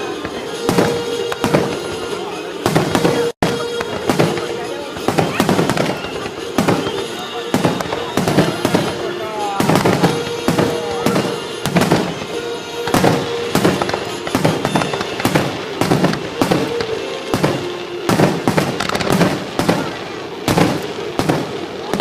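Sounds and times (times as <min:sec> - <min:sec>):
firework shells bursting: 0:00.0 - 0:22.0
music playing: 0:00.0 - 0:22.0.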